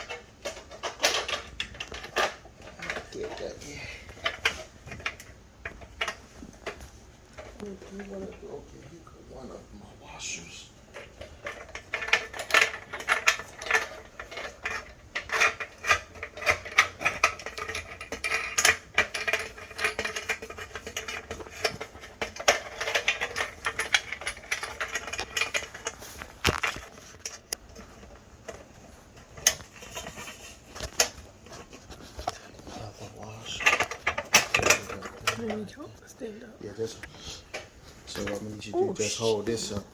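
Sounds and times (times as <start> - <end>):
metal fittings clicking and scraping: 10.9 - 35.6.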